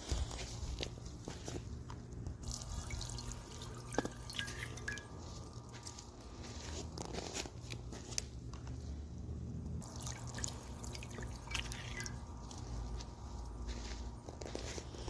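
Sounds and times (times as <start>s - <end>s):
water splashes and drips: 2.4s - 6.1s, 9.8s - 13.0s.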